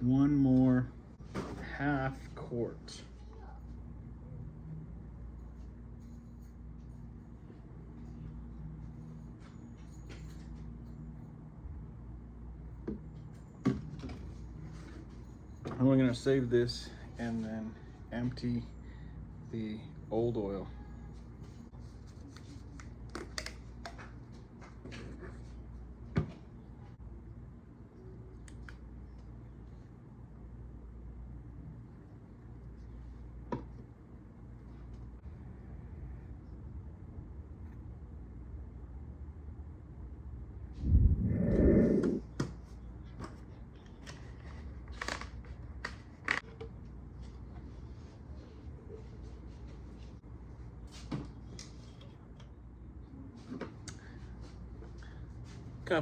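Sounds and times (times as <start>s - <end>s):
steady low hum: 0.0s - 56.0s
low rumble: 40.7s - 42.3s.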